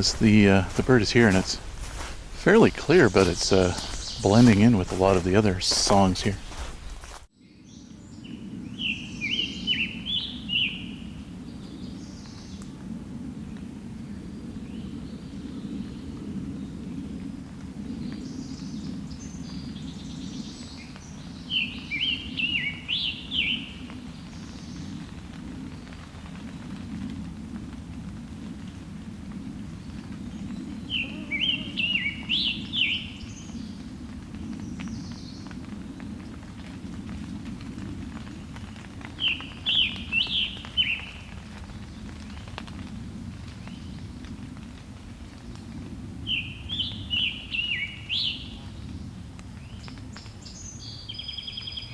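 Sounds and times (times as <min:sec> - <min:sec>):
other birds singing: 0:00.0 - 0:10.9, 0:30.4 - 0:33.7, 0:39.2 - 0:41.2.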